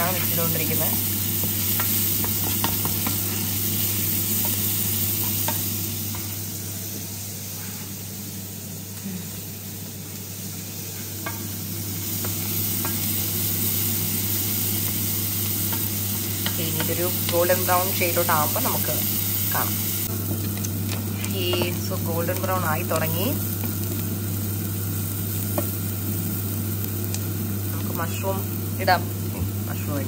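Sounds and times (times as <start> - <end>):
onions sizzling in a frying pan: 0.0 - 30.0
spatula tapping a pan: 1.4 - 3.2.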